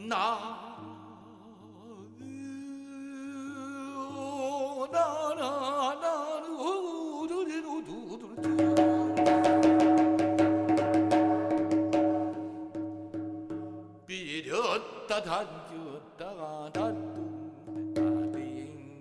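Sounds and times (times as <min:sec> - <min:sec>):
wordless singing with deep vibrato: 0:00.0 - 0:19.0
drum strokes: 0:08.4 - 0:14.1, 0:16.8 - 0:19.0.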